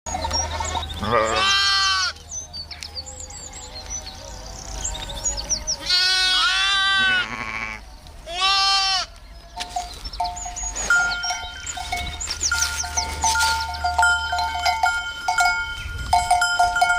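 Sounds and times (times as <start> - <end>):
goats bleating: 0.1 - 2.2, 5.8 - 9.2.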